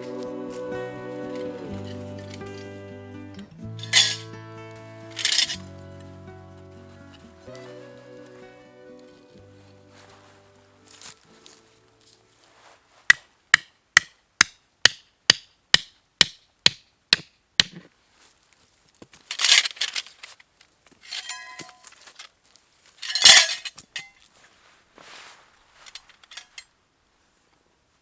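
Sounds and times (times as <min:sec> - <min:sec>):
light metallic rattle: 0:03.6 - 0:04.4, 0:05.0 - 0:06.1, 0:21.0 - 0:22.3, 0:23.0 - 0:24.2, 0:25.9 - 0:26.7.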